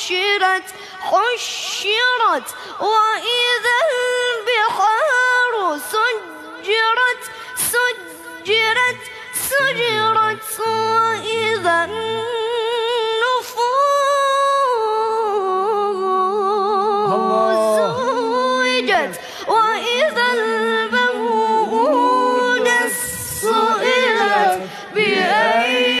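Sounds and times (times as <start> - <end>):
singer breathing: 0.7 - 1.1, 2.5 - 2.8, 7.2 - 7.6, 19.2 - 19.6, 24.7 - 25.0
solo voice singing: 7.8 - 13.8, 14.5 - 26.0.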